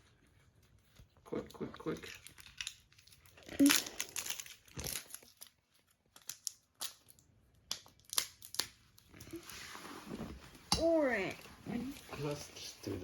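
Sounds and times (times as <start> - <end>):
packaging crinkling: 1.9 - 7.2.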